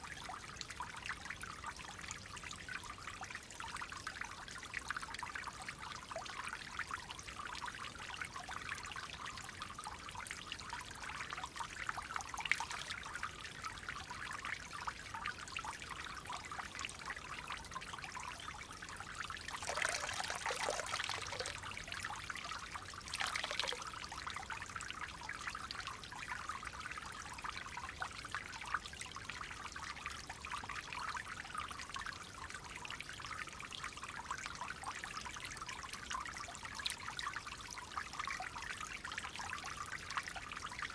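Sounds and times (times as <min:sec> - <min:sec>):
stream water flowing: 0:09.1 - 0:28.0
water gushing: 0:19.6 - 0:21.7, 0:23.0 - 0:23.8.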